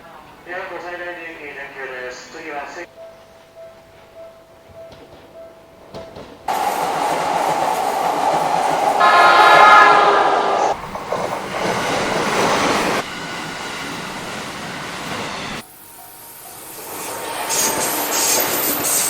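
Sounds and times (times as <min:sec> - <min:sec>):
train running by: 0:01.2 - 0:19.0
train horn: 0:06.5 - 0:10.8.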